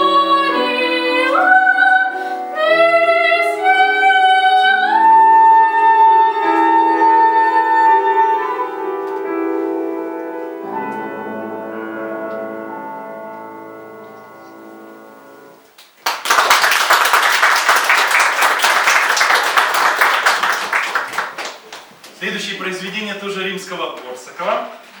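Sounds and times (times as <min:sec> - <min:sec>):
woman singing: 0:00.0 - 0:09.3
piano accompaniment: 0:00.0 - 0:22.0
audience applause: 0:16.0 - 0:22.0.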